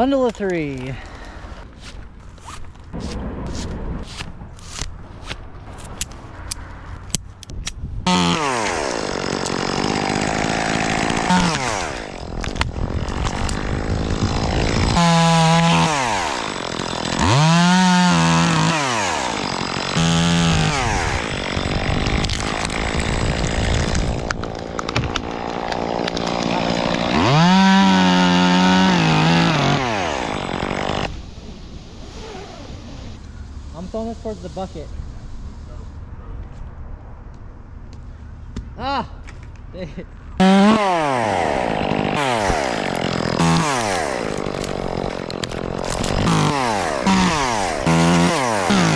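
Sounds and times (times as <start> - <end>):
chainsaw revving and cutting: 8.1 - 31.2, 32.0 - 33.2, 40.4 - 48.9.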